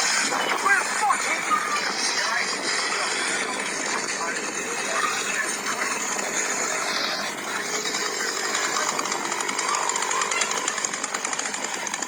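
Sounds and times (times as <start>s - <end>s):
chainsaw running: 5.5s - 12.0s.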